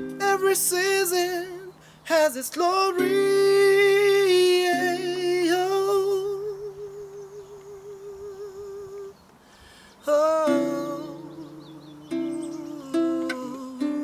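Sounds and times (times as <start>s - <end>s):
person singing with vibrato: 0.0s - 9.2s, 10.0s - 14.0s.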